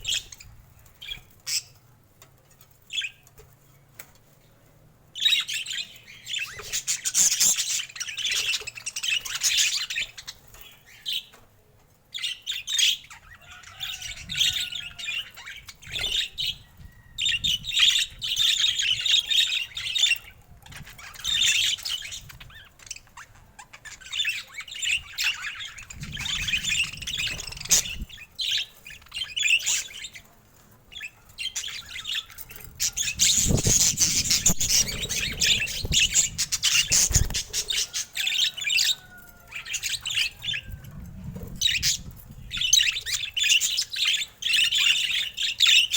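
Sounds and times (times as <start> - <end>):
budgerigars chattering and warbling: 12.3 - 30.2, 30.9 - 40.8.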